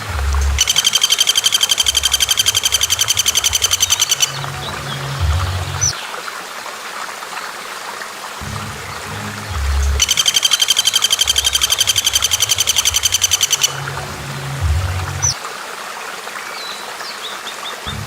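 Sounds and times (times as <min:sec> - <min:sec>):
background music: 0:00.0 - 0:05.9, 0:08.4 - 0:15.4
bird chirps: 0:00.0 - 0:06.0, 0:08.4 - 0:13.8
running water hiss: 0:00.0 - 0:18.0
bird rattling trill: 0:00.6 - 0:04.4, 0:10.0 - 0:13.7.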